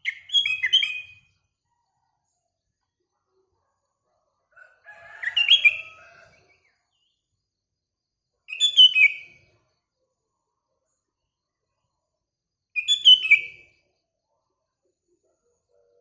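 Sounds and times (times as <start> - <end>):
bird singing whistled phrases: 0.0 - 1.2, 8.5 - 9.3, 12.8 - 13.7.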